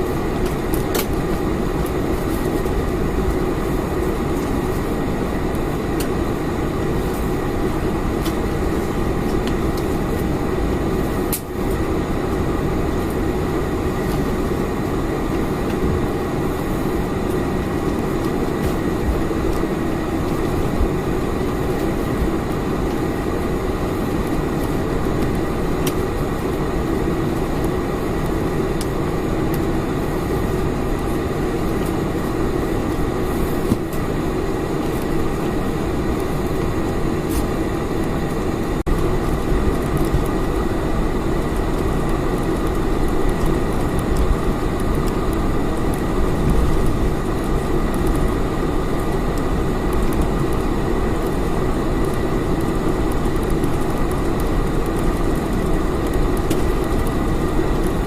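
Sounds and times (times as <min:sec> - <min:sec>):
airplane cabin engine noise: 0:00.0 - 0:58.0.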